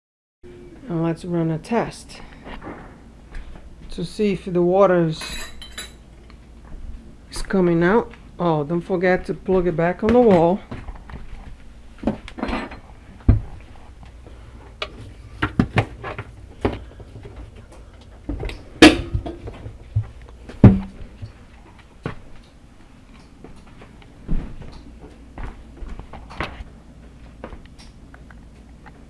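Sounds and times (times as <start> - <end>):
louder clunks: 14.2 - 21.4
hands handling dishwasher clicks: 18.4 - 19.8.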